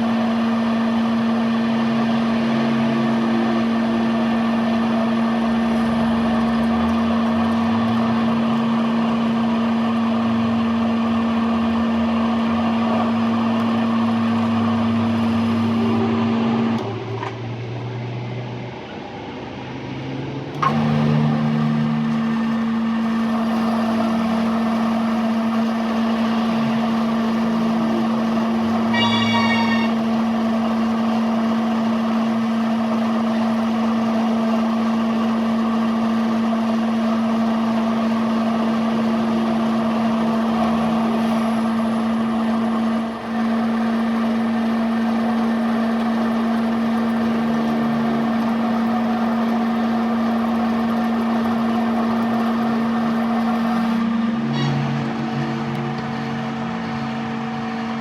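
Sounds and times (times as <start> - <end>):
machine humming: 1.0 - 10.0, 28.4 - 31.0
brief high-pitched ringing: 28.9 - 30.3.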